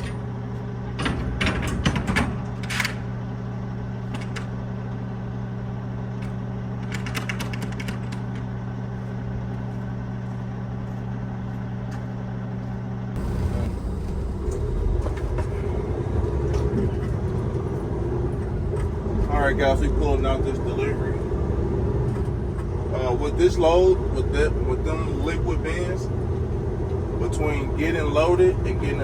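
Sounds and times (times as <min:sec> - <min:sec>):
rough low noise: 0:13.2 - 0:23.5
diesel truck engine idling: 0:13.2 - 0:29.0.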